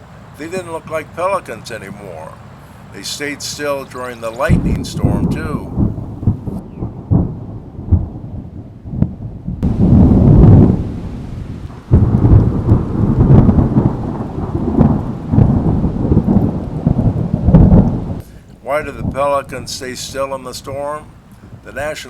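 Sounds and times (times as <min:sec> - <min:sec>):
rain: 0:00.0 - 0:22.0
thunder rumbling: 0:00.0 - 0:22.0.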